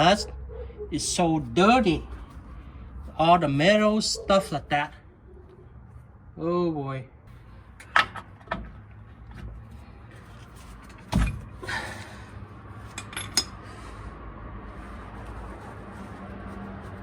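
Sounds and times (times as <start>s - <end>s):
metal tools clinking: 12.9s - 13.6s.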